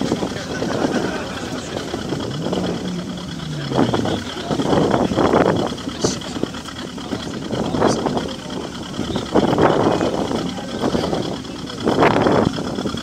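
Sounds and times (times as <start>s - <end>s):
background voices: 0.0s - 13.0s
car engines revving: 0.0s - 13.0s.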